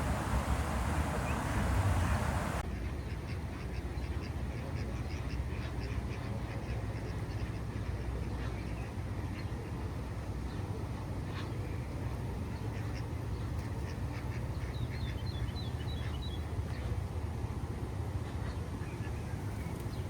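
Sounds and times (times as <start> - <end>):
ducks quacking: 0.0 - 2.6
hiss: 0.0 - 2.6
steady low rumble: 0.0 - 2.6.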